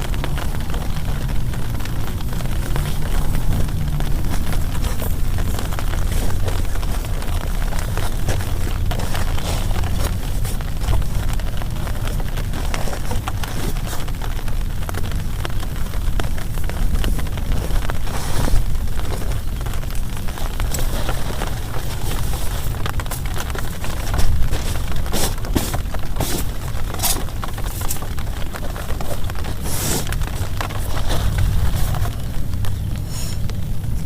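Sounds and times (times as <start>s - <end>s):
heavy rain on plastic tarp: 0.0s - 34.0s.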